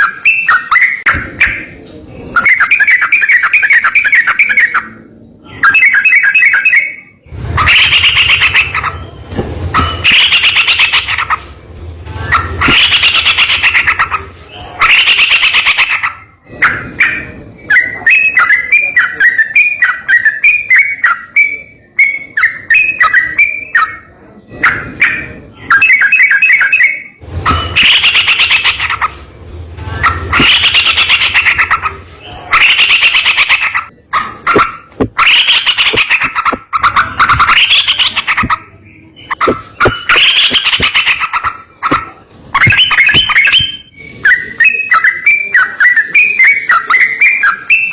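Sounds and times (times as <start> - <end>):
bulbul singing rapid bursts: 5.9 - 11.5, 12.3 - 16.3, 27.5 - 29.2, 30.1 - 43.9.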